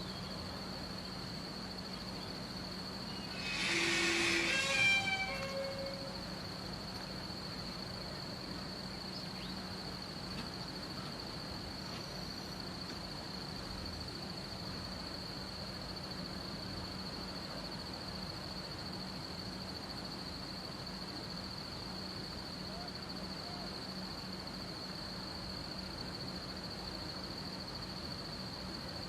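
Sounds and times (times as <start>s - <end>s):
even hiss: 2.8s - 7.9s
insect trilling: 3.1s - 6.5s.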